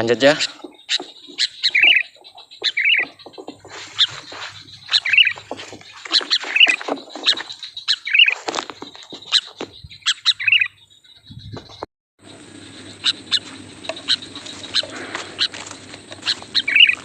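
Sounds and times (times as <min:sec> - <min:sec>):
bird chirping: 0:00.0 - 0:17.0
rustling: 0:00.4 - 0:09.8, 0:13.0 - 0:17.0.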